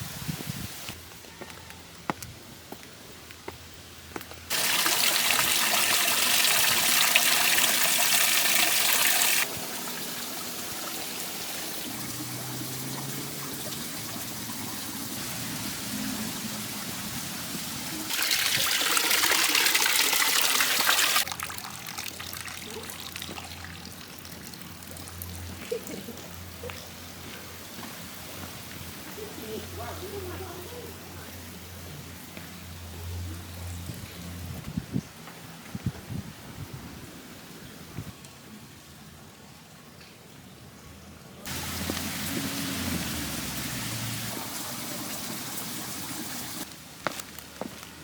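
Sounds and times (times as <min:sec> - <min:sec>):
stream water trickling: 0:04.5 - 0:27.3, 0:41.4 - 0:47.9.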